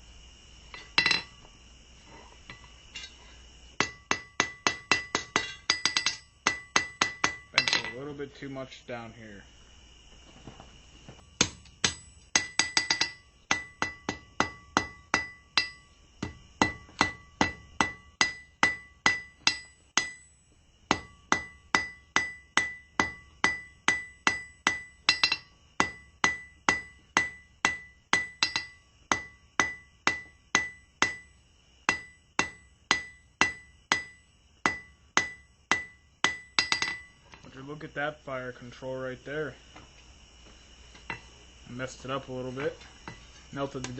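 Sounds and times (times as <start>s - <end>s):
hammer ringing on anvil: 3.8s - 8.0s, 11.4s - 15.9s, 16.6s - 31.3s, 31.9s - 37.1s.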